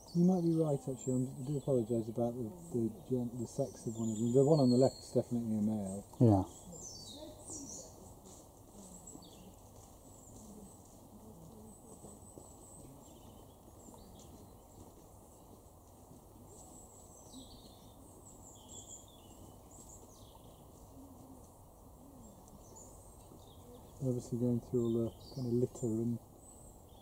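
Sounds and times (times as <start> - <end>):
high-pitched small bird calls: 0.0 - 8.1.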